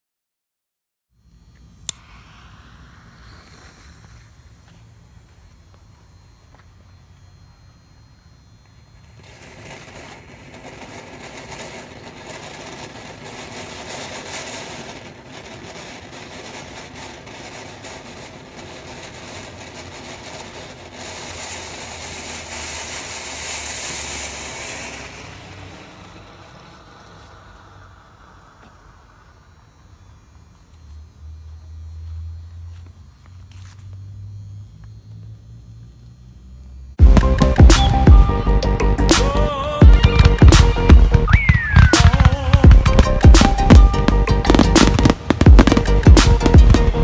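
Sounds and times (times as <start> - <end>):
firework crackles: 1.2 - 47.0
firework fountain hissing: 1.2 - 47.0.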